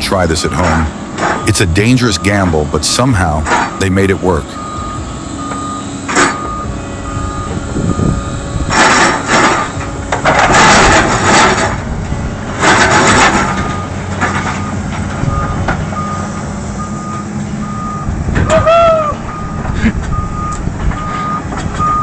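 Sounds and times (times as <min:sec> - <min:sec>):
travel alarm beeping: 0:00.0 - 0:08.7, 0:13.3 - 0:22.0
excavator diesel engine running: 0:00.0 - 0:22.0
loud rough bursts of machine noise: 0:07.7 - 0:15.6.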